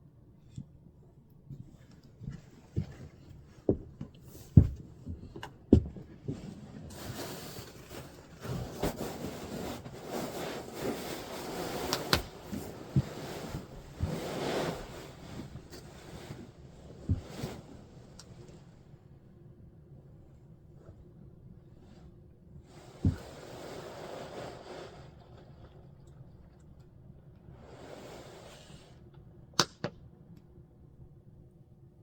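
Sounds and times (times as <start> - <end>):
rustling: 6.2 - 18.1.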